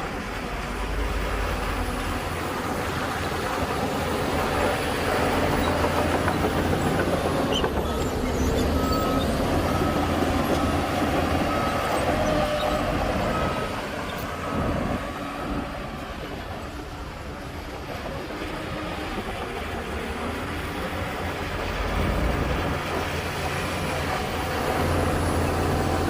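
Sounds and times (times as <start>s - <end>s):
heavy diesel machinery running: 0.0s - 26.0s
reversing alarm beeping: 7.7s - 15.7s.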